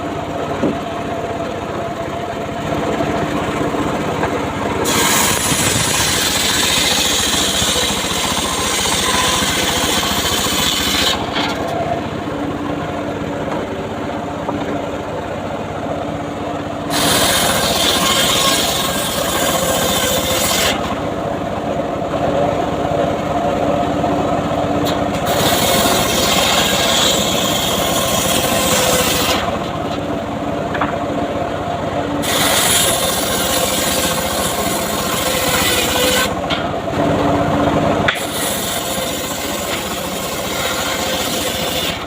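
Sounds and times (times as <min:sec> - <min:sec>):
circular saw motor running: 0:00.0 - 0:42.0
saw blade cutting wood: 0:04.2 - 0:12.0, 0:16.9 - 0:21.0, 0:24.8 - 0:30.1, 0:32.2 - 0:36.7, 0:38.1 - 0:42.0.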